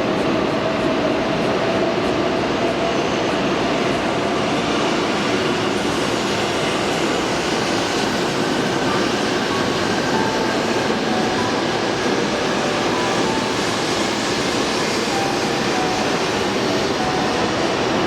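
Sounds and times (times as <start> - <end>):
train rushing noise: 0.0 - 18.0.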